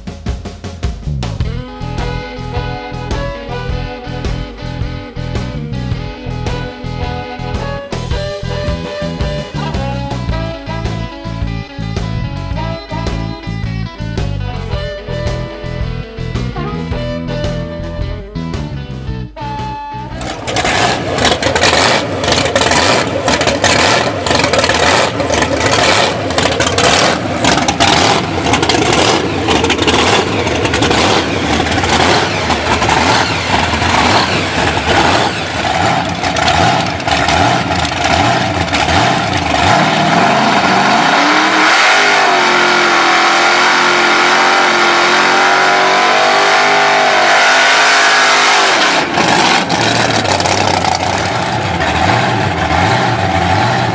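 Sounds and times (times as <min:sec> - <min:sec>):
car engine idling rough: 0:20.1 - 0:47.0, 0:48.3 - 0:53.9
car engine revving high: 0:20.1 - 0:53.9
supercharger surging: 0:20.1 - 0:53.9.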